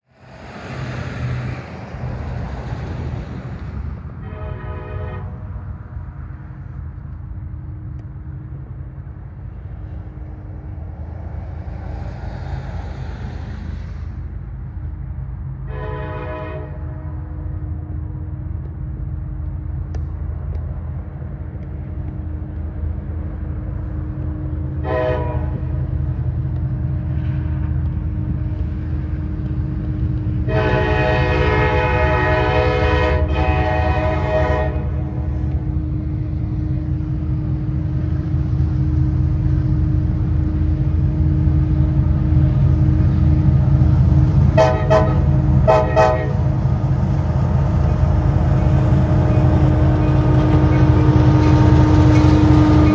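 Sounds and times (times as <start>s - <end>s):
diesel locomotive engine rumble: 0.0s - 52.9s
train air horn: 4.2s - 5.6s, 15.6s - 17.2s, 24.8s - 25.9s, 30.4s - 35.6s, 44.5s - 46.6s.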